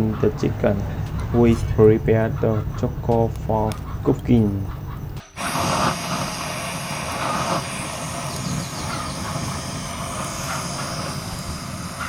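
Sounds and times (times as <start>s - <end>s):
steady rushing rumbling noise: 5.4s - 12.0s.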